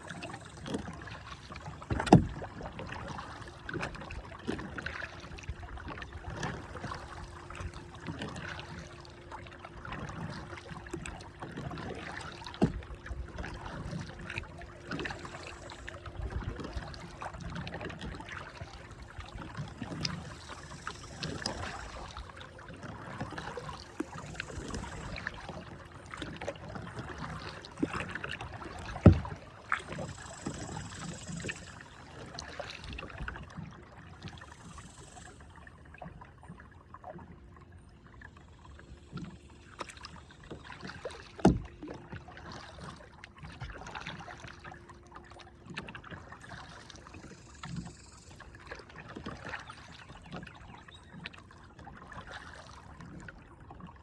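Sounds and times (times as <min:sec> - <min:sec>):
paddle splashing through water: 0:00.0 - 0:54.0
paddle knocking hull: 0:00.1 - 0:31.8, 0:40.8 - 0:41.9.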